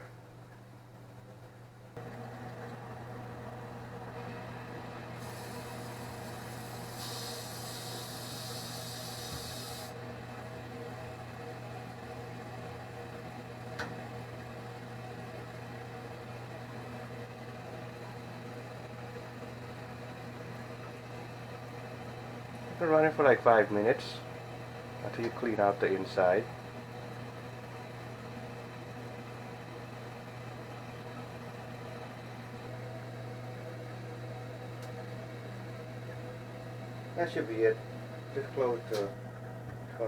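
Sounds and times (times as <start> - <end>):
water heater hum: 0.0 - 40.0
high hiss: 6.8 - 9.9.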